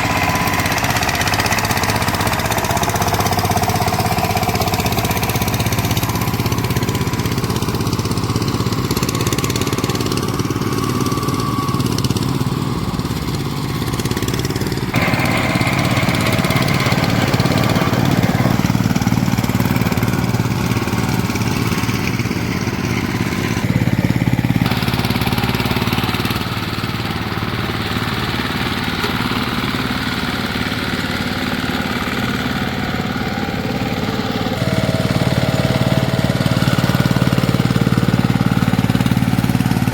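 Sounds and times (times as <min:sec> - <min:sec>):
diesel tiller engine running: 0:00.0 - 0:39.9.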